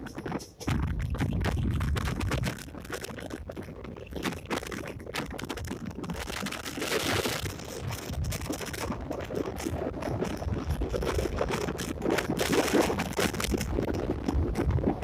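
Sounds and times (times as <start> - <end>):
train coach wheels rattling: 0.0 - 1.7
wind buffeting microphone: 0.0 - 15.0.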